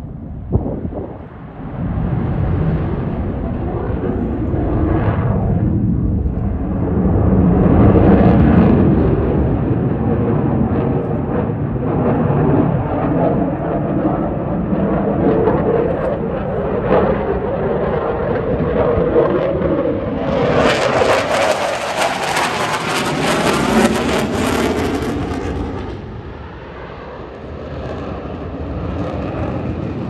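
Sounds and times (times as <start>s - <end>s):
jet engine roar: 0.0s - 30.0s.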